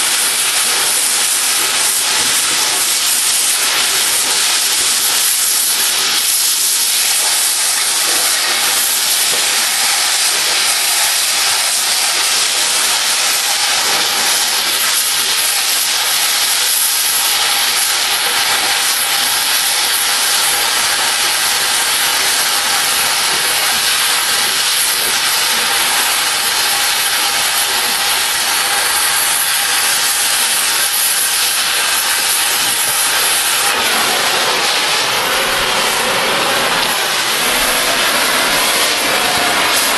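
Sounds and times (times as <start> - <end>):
cutting torch hissing: 0.0 - 39.9.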